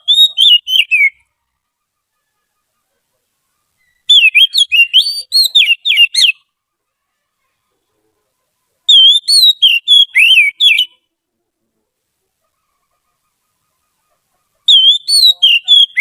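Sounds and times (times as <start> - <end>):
bird singing whistled notes: 0.0 - 1.2, 3.8 - 6.5, 8.9 - 11.0, 14.7 - 16.0.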